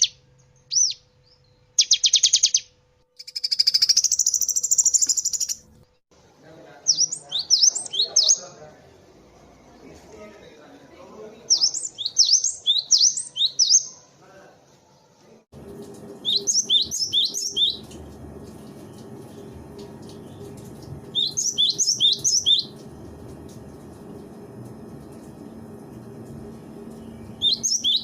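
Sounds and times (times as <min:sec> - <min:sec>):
bird high chirps: 0:00.0 - 0:05.7, 0:06.9 - 0:08.6, 0:11.5 - 0:14.1, 0:16.2 - 0:18.0, 0:18.9 - 0:22.9, 0:27.0 - 0:28.0
steady low hum: 0:15.6 - 0:28.0.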